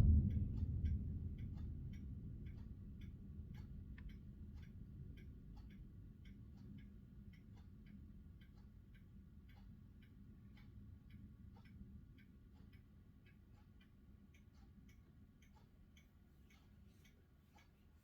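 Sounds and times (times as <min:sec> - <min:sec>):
low steady rumble: 0:00.0 - 0:12.3.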